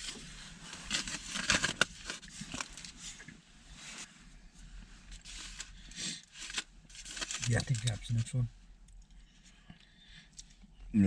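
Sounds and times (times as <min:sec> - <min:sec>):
rustling and crinkling handling: 0:00.0 - 0:08.5.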